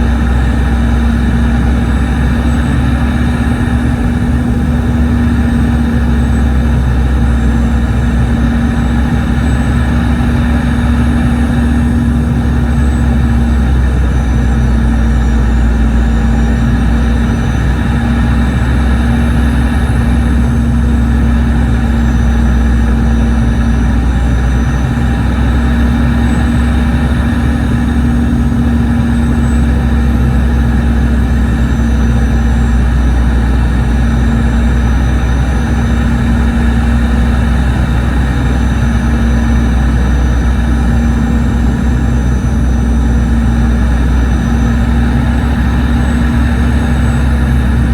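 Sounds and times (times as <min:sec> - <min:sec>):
airplane cabin engine drone: 0:00.0 - 0:47.9
airflow noise: 0:45.8 - 0:47.9.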